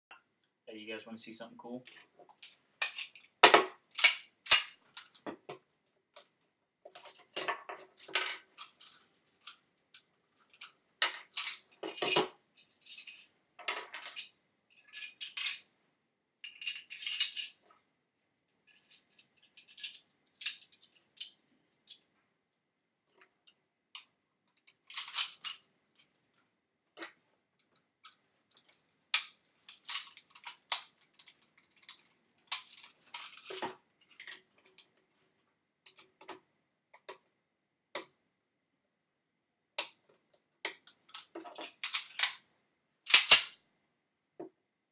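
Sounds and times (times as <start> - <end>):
pistol parts clicking and sliding: 2.4 - 3.3, 3.9 - 5.2, 27.7 - 34.9, 40.7 - 42.4, 43.1 - 43.6.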